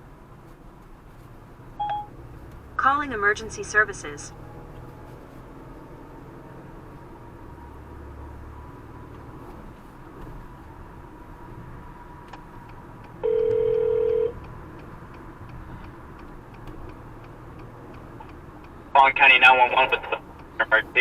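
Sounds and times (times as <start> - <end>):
car cabin road noise: 0.0 - 21.0
telephone ring tone: 13.2 - 14.3.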